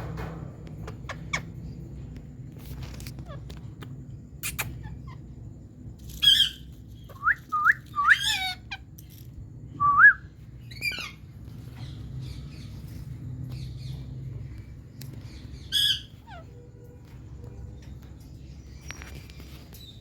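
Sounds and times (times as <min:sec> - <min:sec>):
parrot squawks and whistles: 0:06.1 - 0:08.8.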